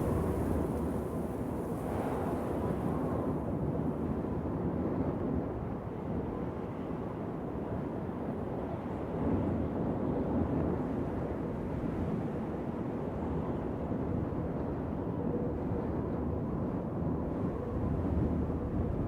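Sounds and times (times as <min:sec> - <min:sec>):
wind blowing: 0:00.0 - 0:02.2.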